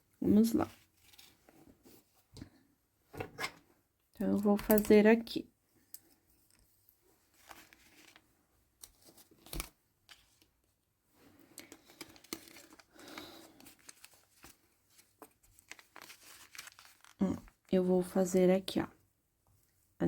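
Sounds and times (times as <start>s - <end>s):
yarn rustling: 13.5s - 17.5s.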